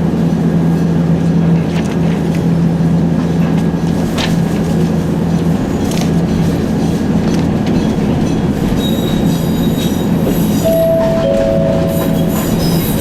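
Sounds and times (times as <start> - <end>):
train wheels and motor rumbling: 0.0 - 13.0
steady tones: 10.7 - 13.0.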